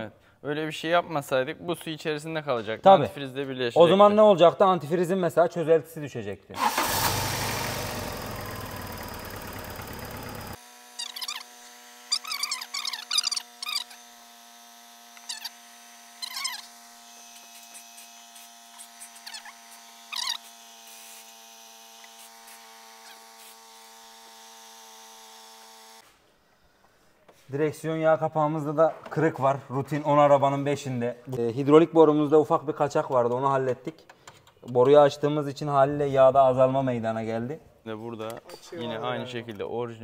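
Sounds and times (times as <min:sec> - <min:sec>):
car engine running: 0:06.8 - 0:10.6.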